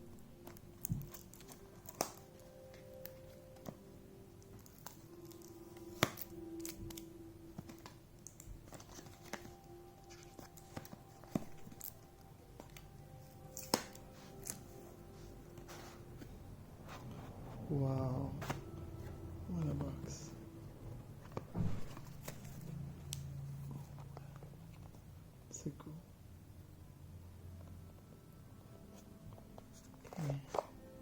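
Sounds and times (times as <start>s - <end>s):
faint background music: 0.0s - 31.0s
packaging clicks and taps: 0.4s - 3.8s, 4.4s - 14.6s.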